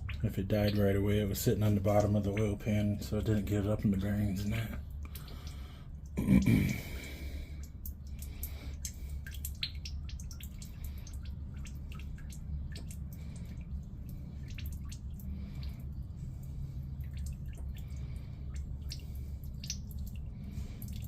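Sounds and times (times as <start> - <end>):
oil dripping into a pan: 0.0 - 21.0.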